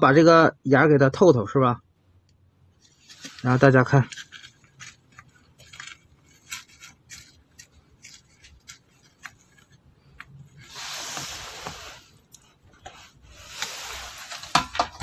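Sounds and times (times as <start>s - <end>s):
needle scraping circuit board: 2.8s - 15.0s
rasping hiss: 10.6s - 12.2s, 13.0s - 14.6s.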